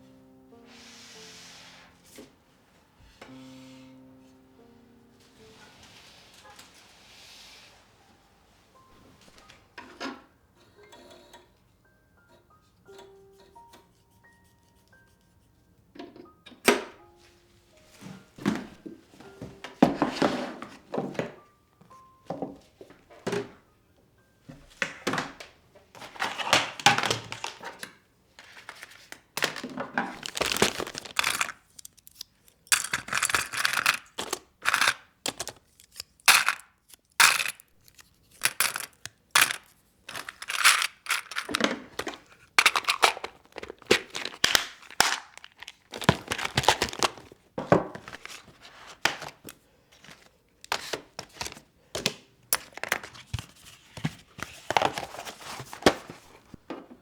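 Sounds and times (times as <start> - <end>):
rustling and crinkling by hand: 25.4 - 57.0.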